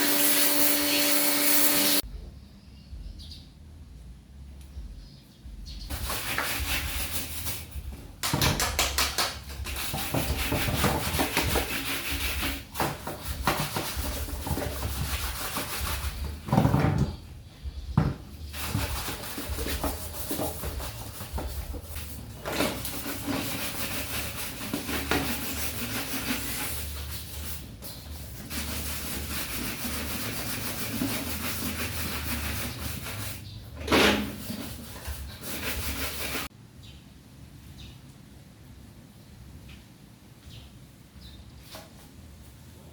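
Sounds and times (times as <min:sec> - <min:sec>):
scrubbing and rubbing: 0:05.9 - 0:16.6, 0:18.4 - 0:36.5.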